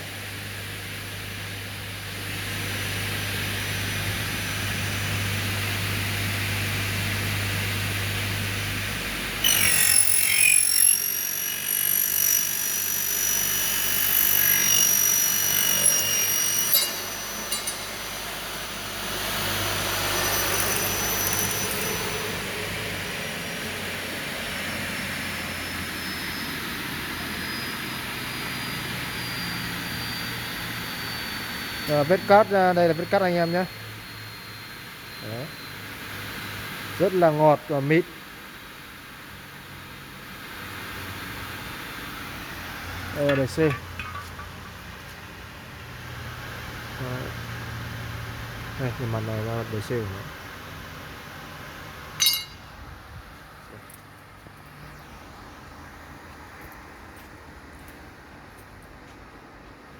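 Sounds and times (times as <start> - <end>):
saw motor hum: 7.3 - 25.3
blade screeching through metal: 9.4 - 22.5.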